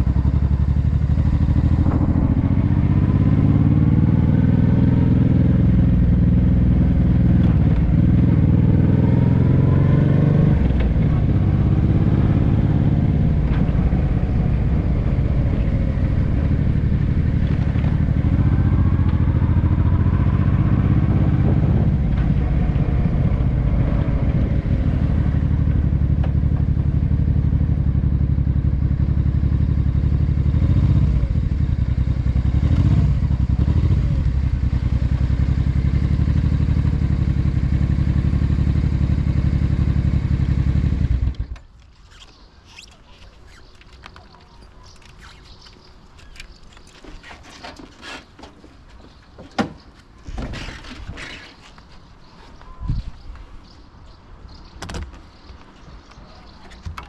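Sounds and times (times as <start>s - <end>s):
motorcycle engine running: 0.0s - 41.6s.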